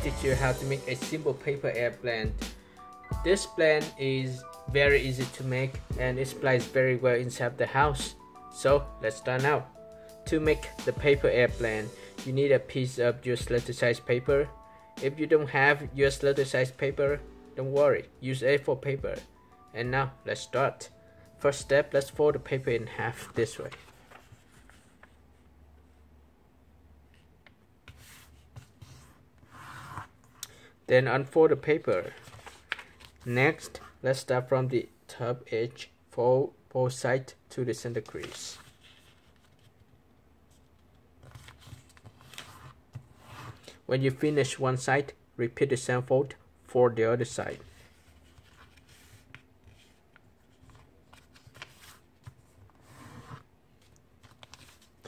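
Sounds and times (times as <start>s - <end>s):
paper being folded and creased: 22.8s - 25.2s, 32.0s - 33.3s, 38.0s - 39.8s, 41.2s - 43.7s, 47.6s - 55.0s.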